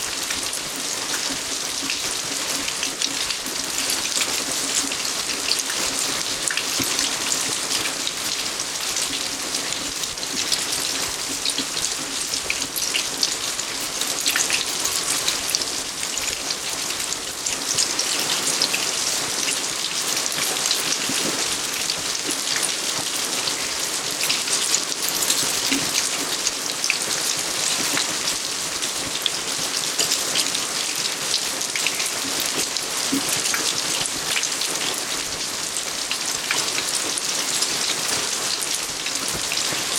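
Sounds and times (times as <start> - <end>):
steady rain on surfaces: 0.0 - 39.9.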